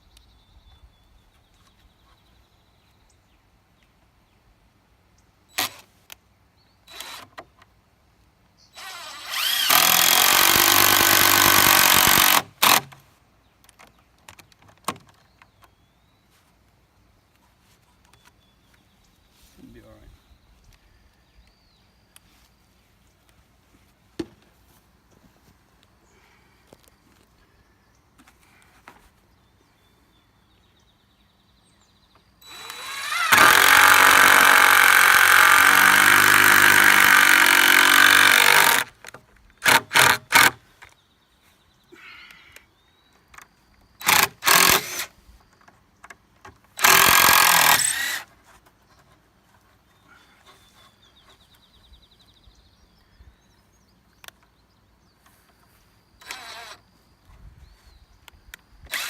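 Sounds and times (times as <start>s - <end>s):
power drill driving screws into wood: 5.6s - 5.9s, 6.9s - 7.5s, 8.8s - 13.0s, 32.4s - 40.6s, 44.0s - 45.2s, 46.7s - 48.3s, 56.2s - 56.8s.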